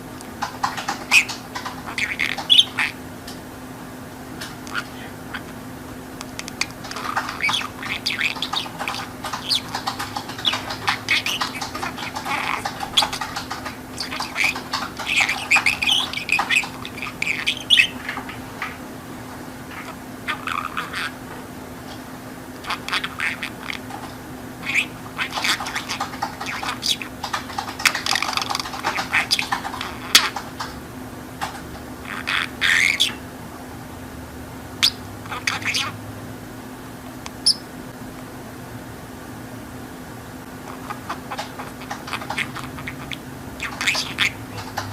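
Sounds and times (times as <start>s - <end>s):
faint low hum: 0.0s - 44.9s
budgerigar chattering: 0.3s - 3.0s, 4.6s - 5.6s, 6.2s - 18.8s, 19.6s - 21.2s, 22.6s - 30.8s, 32.0s - 33.2s, 34.8s - 36.0s, 37.4s - 37.6s, 40.6s - 44.9s.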